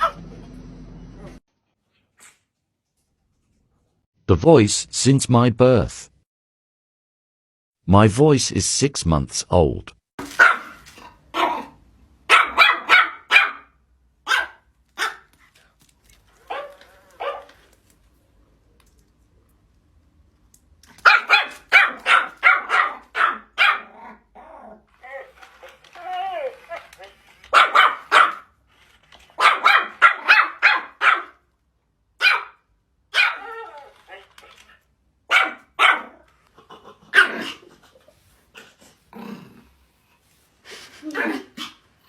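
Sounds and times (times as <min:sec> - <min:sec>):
dog barking: 0:10.4 - 0:15.3, 0:16.4 - 0:17.6, 0:21.0 - 0:24.1, 0:27.5 - 0:28.5, 0:29.4 - 0:31.4, 0:32.2 - 0:33.6, 0:35.3 - 0:36.2, 0:37.1 - 0:37.6.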